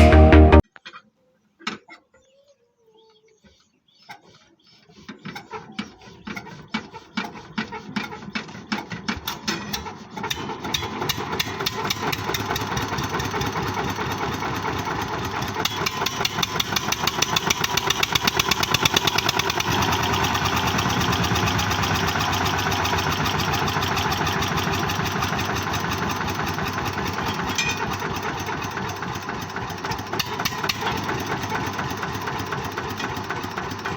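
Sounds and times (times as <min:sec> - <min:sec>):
diesel tractor engine starting: 0:05.1 - 0:33.9.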